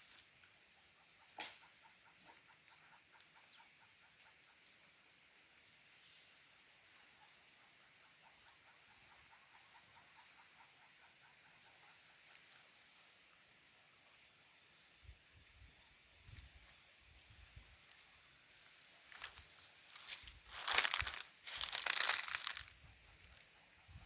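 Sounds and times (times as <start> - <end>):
small chirps: 19.0 - 23.5.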